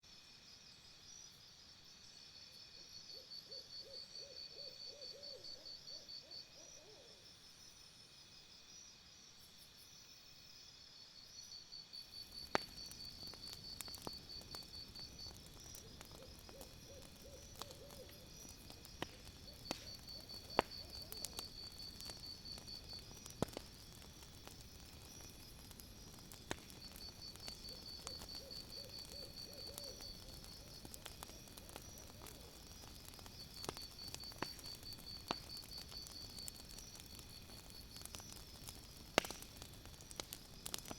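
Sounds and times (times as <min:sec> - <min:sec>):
wood fire crackling: 0:11.2 - 0:40.9.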